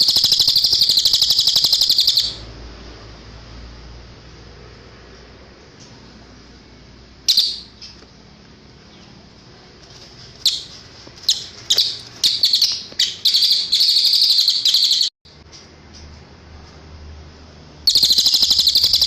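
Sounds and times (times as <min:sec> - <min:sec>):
songbird chirping and trilling: 0:00.0 - 0:02.5, 0:07.3 - 0:08.1, 0:10.4 - 0:15.1, 0:17.9 - 0:19.0.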